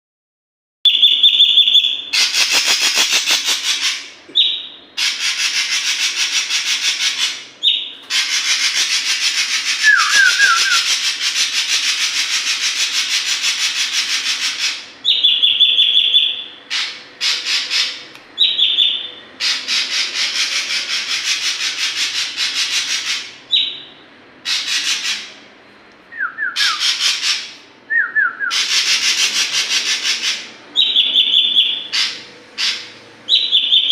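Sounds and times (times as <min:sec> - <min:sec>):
whistled bird notes: 0:00.9 - 0:25.3, 0:26.2 - 0:33.9
harsh rattling bird buzzes: 0:02.2 - 0:03.8.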